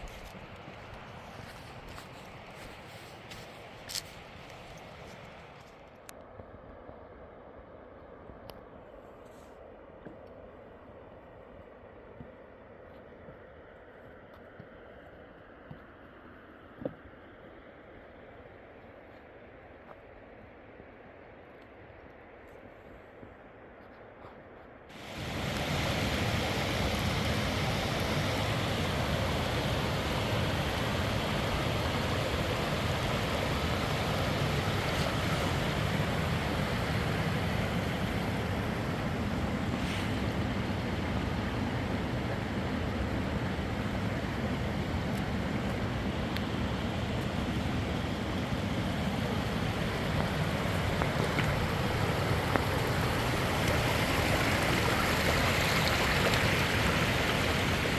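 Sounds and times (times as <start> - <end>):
river rushing: 0.0 - 5.6, 24.9 - 57.9.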